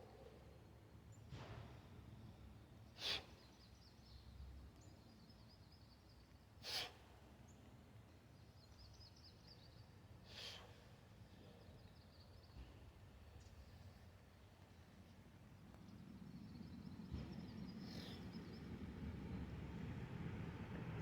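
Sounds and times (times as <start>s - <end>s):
sharp exhales: 3.0s - 3.5s, 6.6s - 7.1s, 10.3s - 11.6s.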